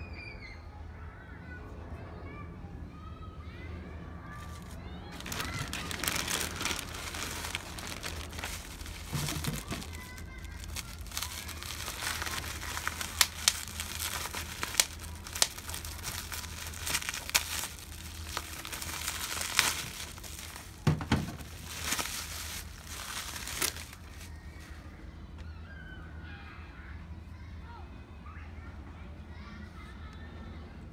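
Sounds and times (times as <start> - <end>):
packaging snapping: 4.4 - 24.3
packaging crinkling: 4.4 - 24.4.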